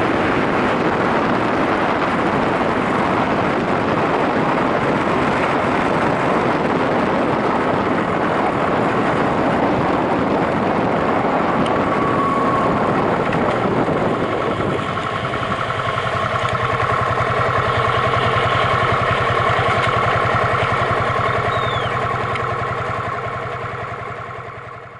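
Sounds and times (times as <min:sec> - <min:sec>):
heavy wind noise: 0:00.0 - 0:24.9
motorcycle engine pulsing: 0:00.0 - 0:24.9.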